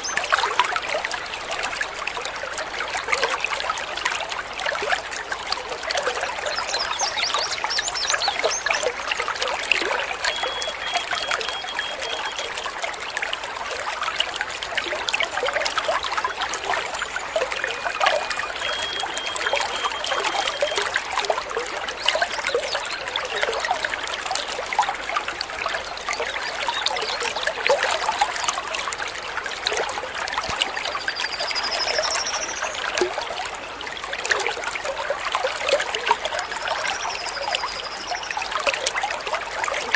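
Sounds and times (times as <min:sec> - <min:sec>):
babbling water: 0:00.0 - 0:39.9
bird chirps and trills: 0:30.9 - 0:33.0.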